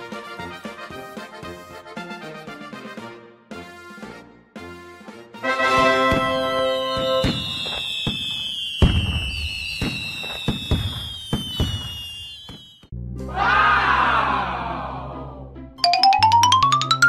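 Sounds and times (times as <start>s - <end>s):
fireworks whistling: 5.6s - 12.9s
fireworks bangs and crackling pops: 5.7s - 12.9s.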